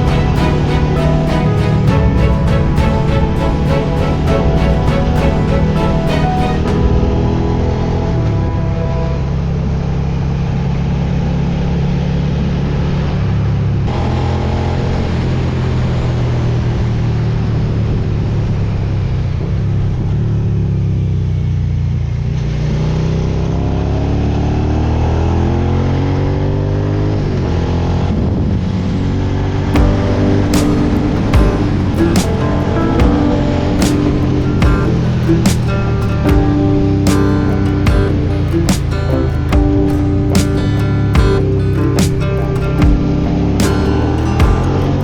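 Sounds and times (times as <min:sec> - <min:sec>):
motorcycle engine running: 0:29.8 - 0:45.0.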